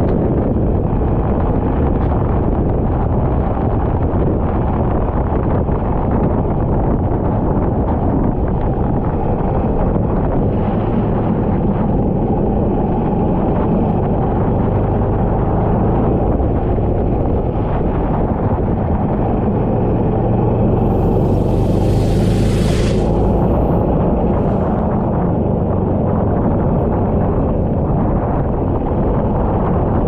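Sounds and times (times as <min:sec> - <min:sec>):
wind buffeting microphone: 0:00.0 - 0:30.0
bright hiss: 0:20.8 - 0:24.9.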